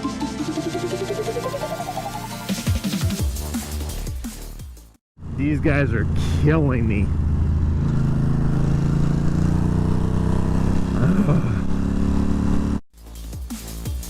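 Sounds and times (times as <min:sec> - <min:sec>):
electronic music with beat: 0:00.0 - 0:05.0, 0:13.0 - 0:14.0
motorcycle engine accelerating: 0:05.2 - 0:12.8.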